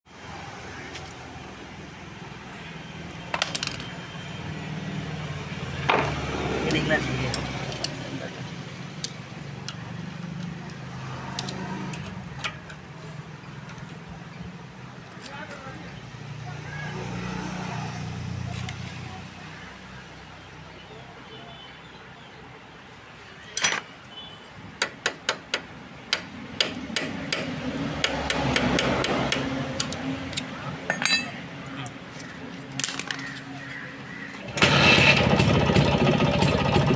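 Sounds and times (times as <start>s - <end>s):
sharp metallic taps: 24.8s - 31.3s
light metallic clinks: 29.8s - 31.4s.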